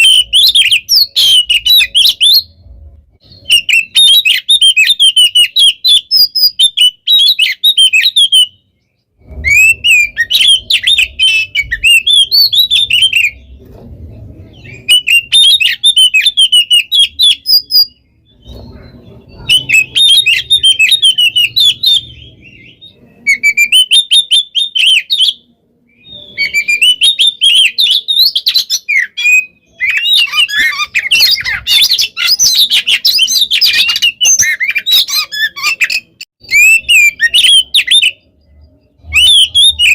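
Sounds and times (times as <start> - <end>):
bird singing rapid chirps and trills: 0.0 - 39.9
faint low rumble: 13.4 - 14.9.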